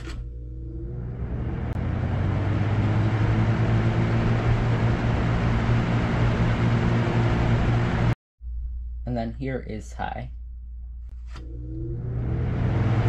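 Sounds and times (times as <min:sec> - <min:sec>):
box fan running: 0:00.0 - 0:08.2, 0:11.3 - 0:13.0.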